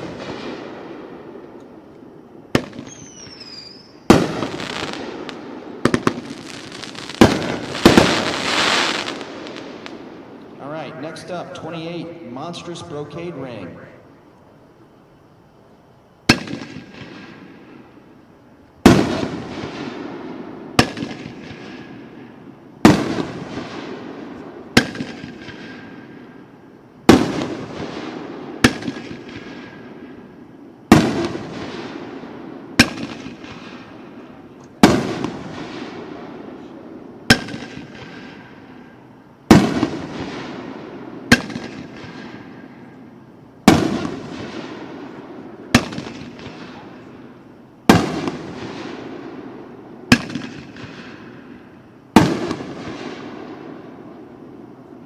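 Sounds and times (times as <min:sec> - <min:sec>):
fireworks aerial burst crackling: 0:00.0 - 0:01.6, 0:02.2 - 0:13.8, 0:43.6 - 0:54.2.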